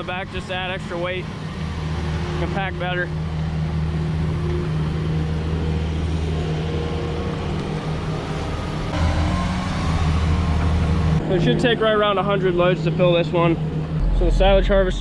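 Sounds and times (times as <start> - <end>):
tractor diesel engine droning: 8.4 - 12.3.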